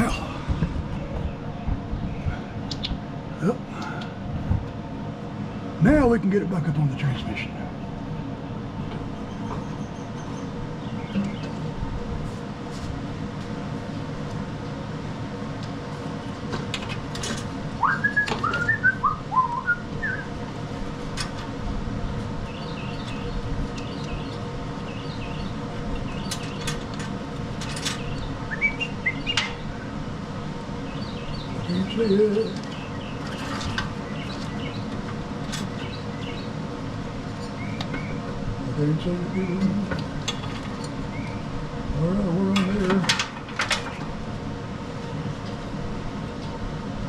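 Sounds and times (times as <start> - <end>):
small birds chirping: 0.0 - 4.2, 7.2 - 11.7, 22.0 - 26.9, 27.8 - 42.8
steady low hum: 0.0 - 47.0.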